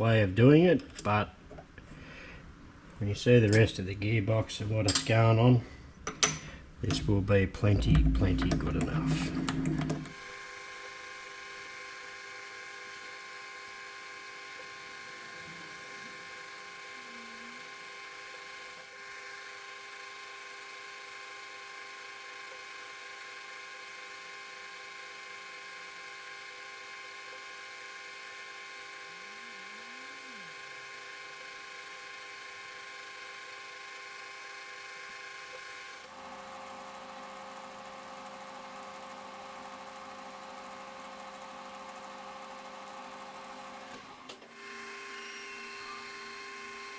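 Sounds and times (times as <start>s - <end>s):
machine tool motor humming: 6.8s - 36.2s, 44.1s - 46.9s.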